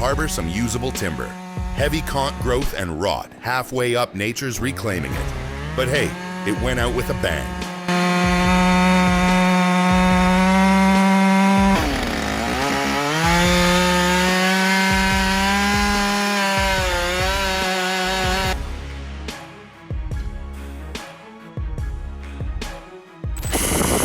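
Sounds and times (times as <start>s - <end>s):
chainsaw cutting wood: 0.0s - 2.9s, 4.6s - 18.6s, 23.4s - 24.0s.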